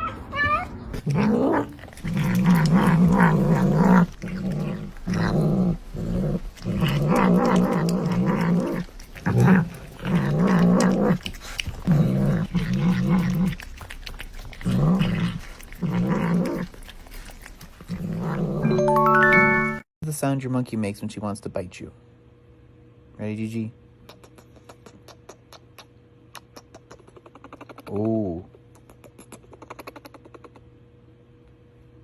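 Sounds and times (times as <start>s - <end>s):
pet growling: 0.0s - 19.5s.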